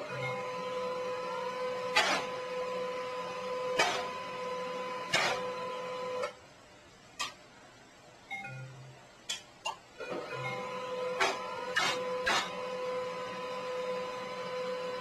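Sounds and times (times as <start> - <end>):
small machine humming: 0.0 - 6.4, 10.0 - 15.0.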